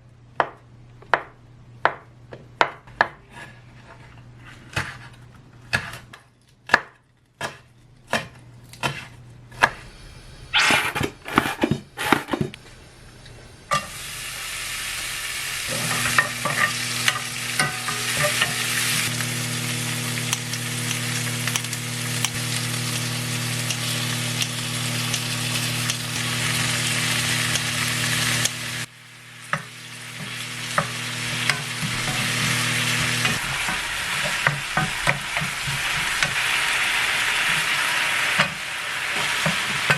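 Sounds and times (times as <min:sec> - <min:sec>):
food sizzling in a pan: 0:13.7 - 0:39.9.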